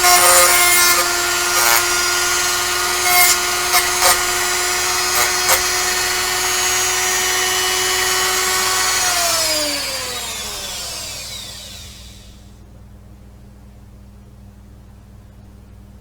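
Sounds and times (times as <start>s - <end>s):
rotary tool whining: 0.0s - 12.4s.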